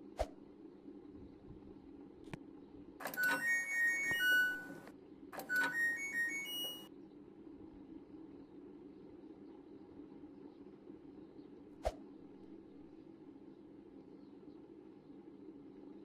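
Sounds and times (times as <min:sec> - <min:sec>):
steady low hum: 0:00.0 - 0:16.0
electronic beeping tune: 0:03.0 - 0:06.9.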